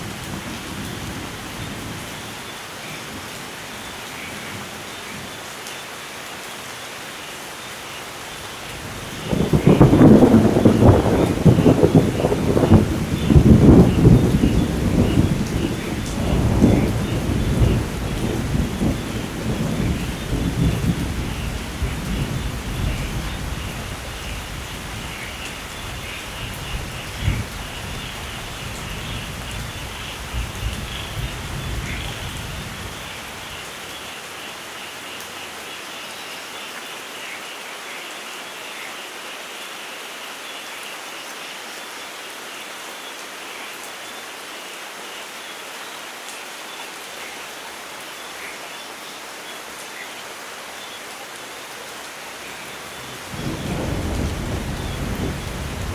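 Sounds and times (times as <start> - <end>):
heavy rain hissing: 0.0 - 37.2, 41.6 - 55.9
thunder rumbling: 8.8 - 33.6, 52.4 - 55.9.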